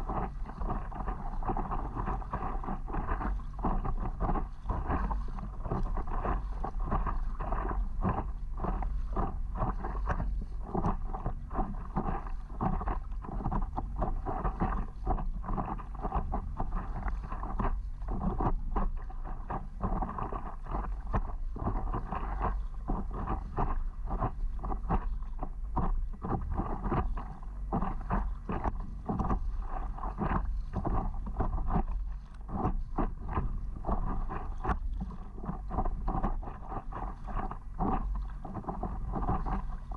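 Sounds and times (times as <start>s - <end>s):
water splashing and lapping: 0.0s - 39.9s
wind rumbling on microphone: 0.0s - 39.9s.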